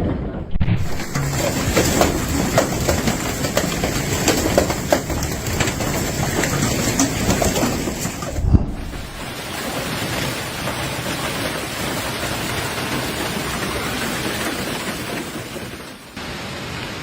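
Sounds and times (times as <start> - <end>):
storm downpour: 0.0 - 17.0
low thump: 8.3 - 9.4.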